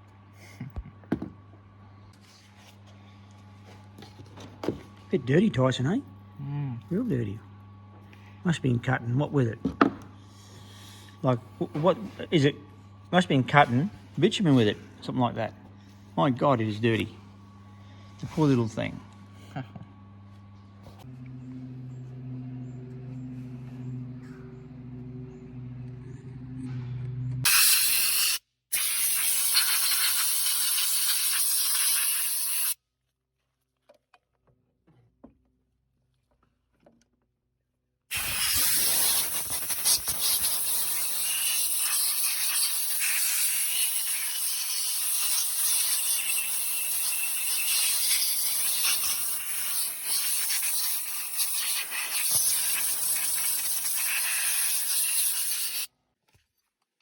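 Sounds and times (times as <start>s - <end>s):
pressurised spray hissing: 27.5s - 32.8s, 38.1s - 55.9s.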